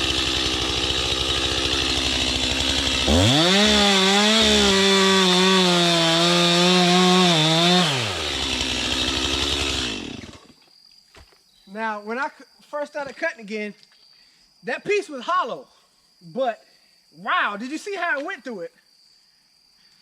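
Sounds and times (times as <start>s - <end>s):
chainsaw cutting log: 0.0s - 10.6s.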